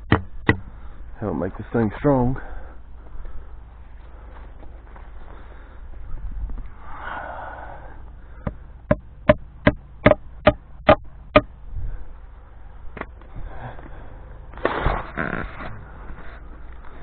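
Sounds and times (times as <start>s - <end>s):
hammer blows: 0.0s - 0.8s.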